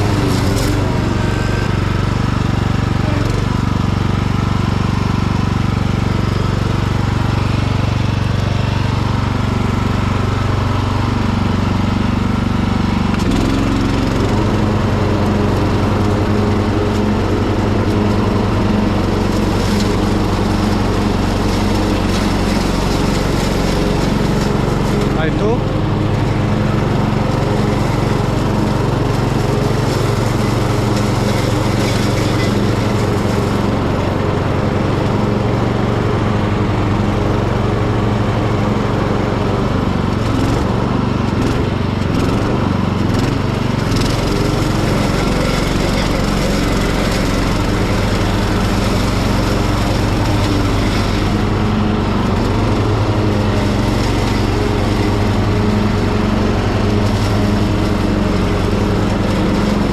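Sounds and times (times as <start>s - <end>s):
ride-on mower cutting grass: 0.0s - 59.9s.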